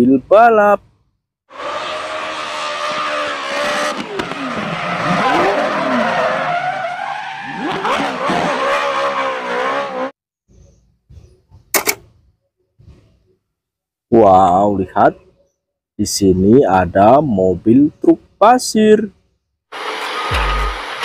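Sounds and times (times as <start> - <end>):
car engine revving: 1.5 - 10.1, 19.7 - 21.0
tyre squeal: 1.6 - 10.1
sharp click: 11.7 - 12.1.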